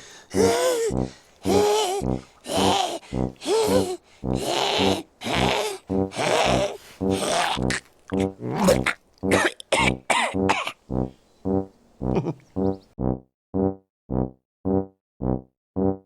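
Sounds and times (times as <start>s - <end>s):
person coughing and hacking: 0.4s - 10.8s.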